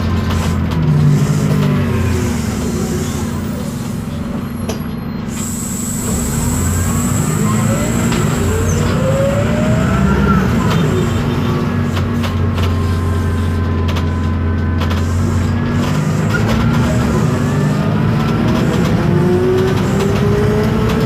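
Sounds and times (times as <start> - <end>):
diesel engine drone: 0.0 - 21.0
transmission whine: 0.9 - 12.1.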